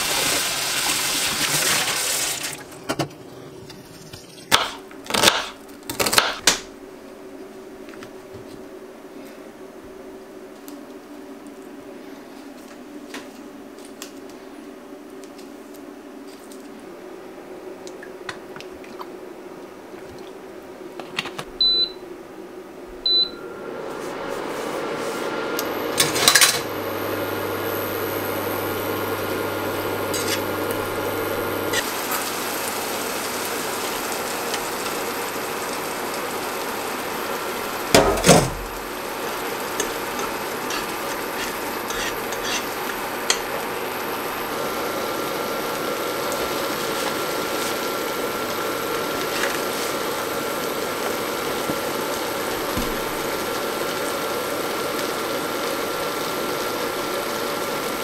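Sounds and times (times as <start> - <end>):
hob control beeps: 23.1 - 23.4
food sizzling in a frying pan: 24.2 - 58.0.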